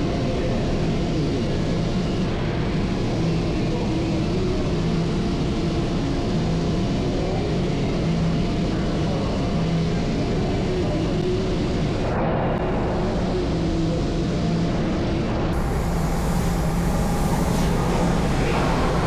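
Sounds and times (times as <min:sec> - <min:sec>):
diesel engine running: 0:15.6 - 0:19.0.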